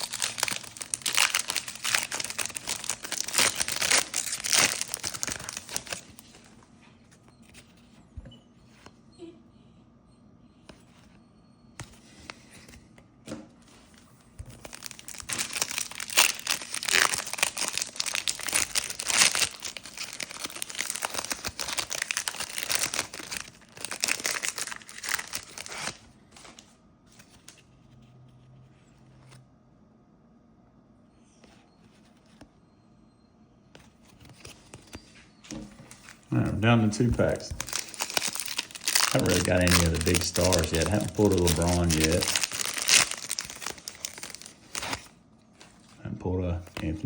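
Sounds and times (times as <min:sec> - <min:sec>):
wrapper tearing and crinkling: 0:00.0 - 0:06.2, 0:14.5 - 0:26.0, 0:35.9 - 0:45.8.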